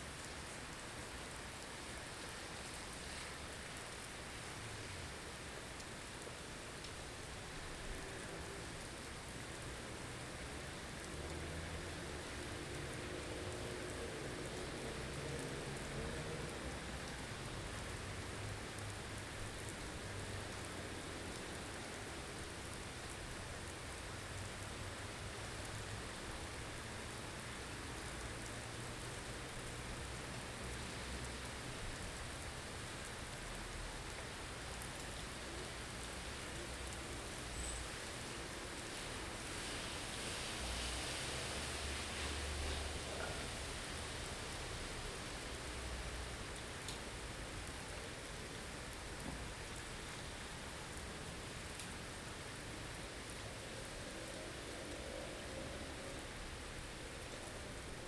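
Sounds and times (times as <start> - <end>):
low rumble of wind: 7.4 - 58.0
hiss of wind-driven snow: 35.2 - 46.5, 52.8 - 58.0
faint wind howl: 53.0 - 58.0.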